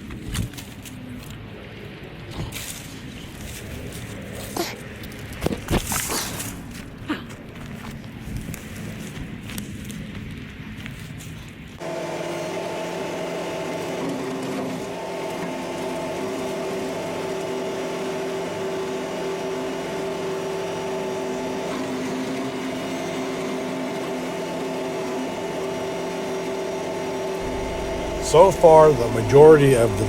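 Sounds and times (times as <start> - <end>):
tractor engine and brush cutter: 11.8 - 30.0.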